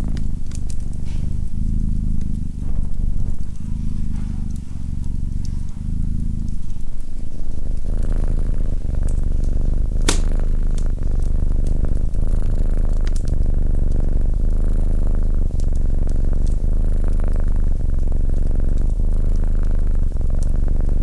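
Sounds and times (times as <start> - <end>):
fire crackling: 0.0 - 16.8
cat purring: 0.0 - 21.0
fire popping: 0.0 - 21.0.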